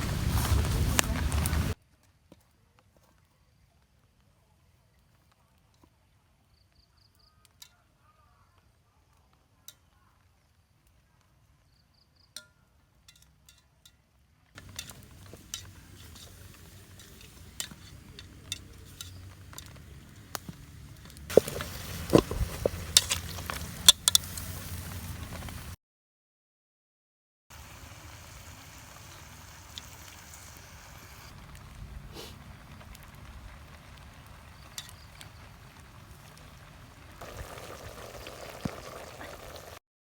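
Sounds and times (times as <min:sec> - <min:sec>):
food sizzling: 0:00.0 - 0:01.8, 0:14.6 - 0:25.8, 0:27.5 - 0:39.8
cooking utensil clinks and scrapes: 0:14.6 - 0:19.8.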